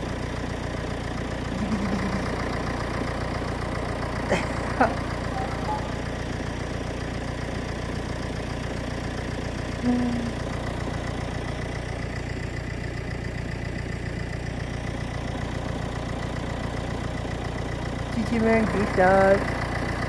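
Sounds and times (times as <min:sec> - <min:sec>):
puppy whimpering: 0:01.5 - 0:02.4, 0:05.2 - 0:06.1
steady low hum: 0:01.5 - 0:02.8
puppies yelping: 0:05.2 - 0:06.2.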